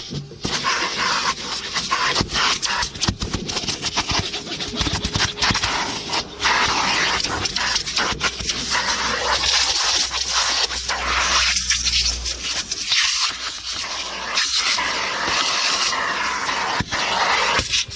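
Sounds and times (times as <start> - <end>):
vacuum nozzle scraping carpet: 0.4 - 17.9
vacuum cleaner running: 1.0 - 12.1.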